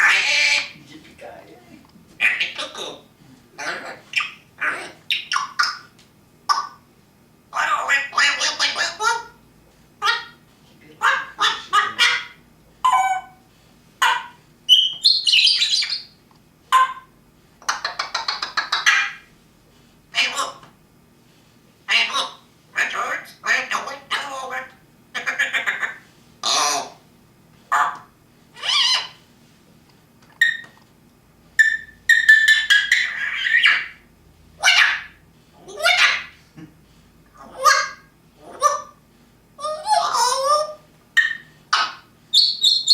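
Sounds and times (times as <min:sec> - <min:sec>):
parrot calls: 0:00.0 - 0:00.8, 0:02.2 - 0:05.9, 0:06.5 - 0:06.8, 0:07.5 - 0:09.4, 0:10.0 - 0:10.4, 0:11.0 - 0:19.3, 0:20.1 - 0:20.7, 0:21.9 - 0:27.0, 0:27.7 - 0:29.2, 0:30.4 - 0:30.8, 0:31.6 - 0:36.5, 0:37.3 - 0:39.0, 0:39.6 - 0:42.9
parrot squawk: 0:00.0 - 0:00.8, 0:02.2 - 0:05.9, 0:07.5 - 0:09.4, 0:10.0 - 0:10.4, 0:11.0 - 0:13.4, 0:14.0 - 0:16.1, 0:16.7 - 0:19.3, 0:20.1 - 0:20.7, 0:21.9 - 0:27.0, 0:27.7 - 0:29.2, 0:30.4 - 0:30.8, 0:31.6 - 0:34.0, 0:34.6 - 0:36.4, 0:37.4 - 0:39.0, 0:39.6 - 0:42.9
parrot whistles: 0:14.0 - 0:17.1, 0:28.6 - 0:29.2, 0:30.4 - 0:30.8, 0:31.6 - 0:34.0, 0:39.7 - 0:42.9.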